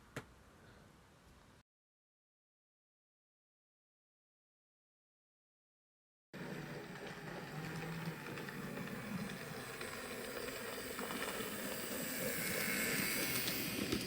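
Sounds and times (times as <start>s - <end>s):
train running rumble: 6.4s - 14.0s.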